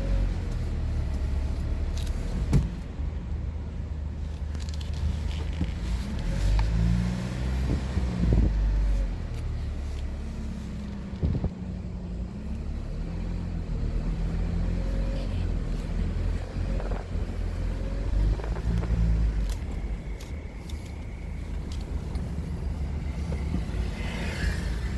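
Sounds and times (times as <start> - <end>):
car engine and road rumble: 0.0 - 24.9.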